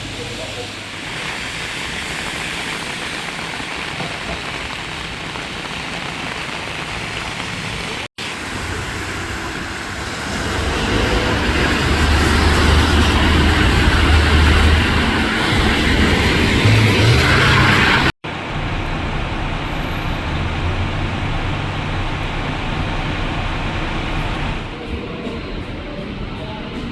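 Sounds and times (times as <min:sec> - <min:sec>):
road and engine rush: 0:06.0 - 0:24.9
low engine hum: 0:10.5 - 0:24.8.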